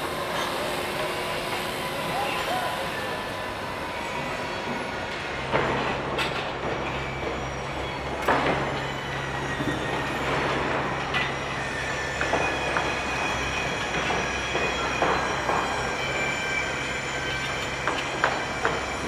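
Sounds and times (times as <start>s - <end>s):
machinery hum and whine: 0.0s - 19.0s
metallic clanks and knocks: 5.5s - 7.0s.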